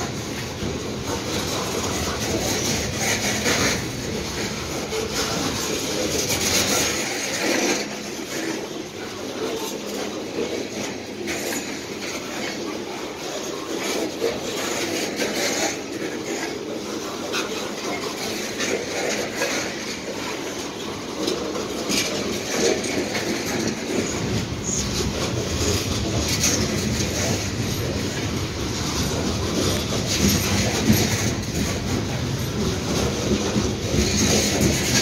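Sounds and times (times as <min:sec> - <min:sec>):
freight wagons rattling on rails: 0:00.0 - 0:35.0
sharp clicks and clanks: 0:13.2 - 0:35.0.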